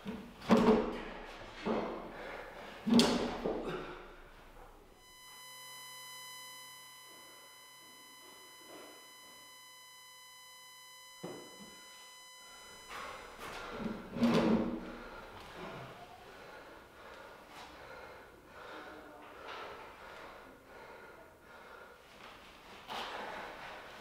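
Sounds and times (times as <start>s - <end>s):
steady electronic tone: 0.8s - 15.4s.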